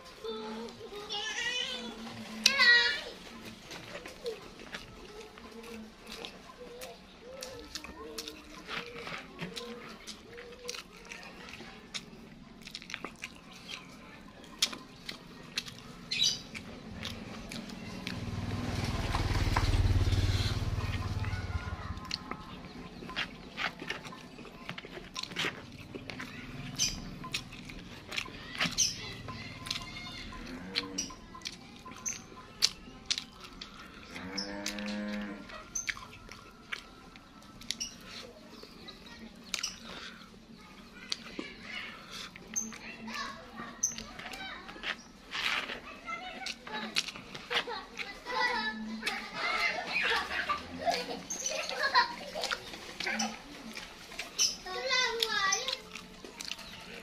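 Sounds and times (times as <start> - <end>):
man chewing food: 2.0 - 57.0
wet mouth clicks and smacks: 11.9 - 13.9.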